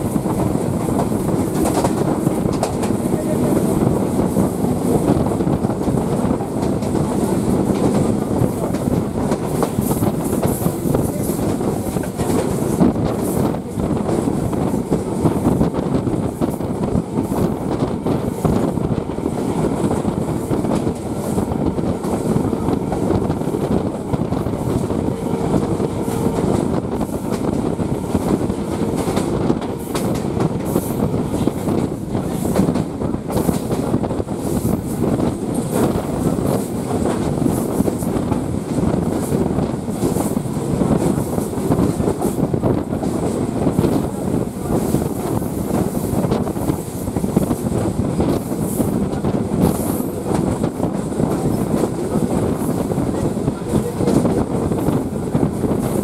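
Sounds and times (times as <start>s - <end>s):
train coach rumbling: 0.0s - 56.0s.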